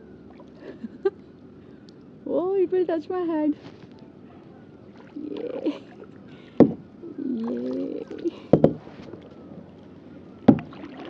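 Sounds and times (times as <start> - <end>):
kayak paddling: 3.8 - 11.0
paddle knocking on kayak hull: 6.6 - 6.8, 8.5 - 8.9, 10.5 - 10.9.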